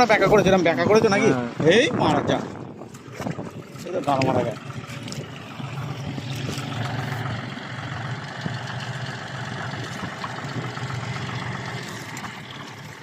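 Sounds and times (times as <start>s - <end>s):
tractor diesel engine running: 2.6s - 13.0s.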